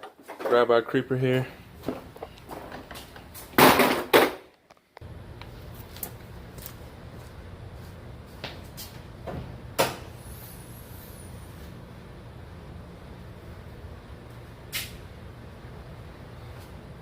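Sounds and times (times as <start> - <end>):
steady low hum: 4.9 - 17.0.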